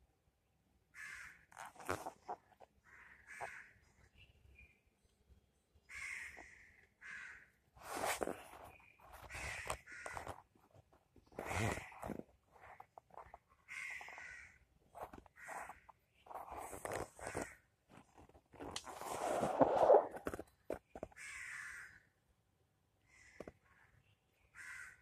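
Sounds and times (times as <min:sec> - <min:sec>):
bird harsh crow-like calls: 0:00.9 - 0:01.5, 0:02.8 - 0:04.3, 0:05.8 - 0:07.6, 0:08.4 - 0:10.5, 0:11.3 - 0:14.7, 0:15.3 - 0:17.8, 0:21.1 - 0:22.2, 0:23.0 - 0:25.0.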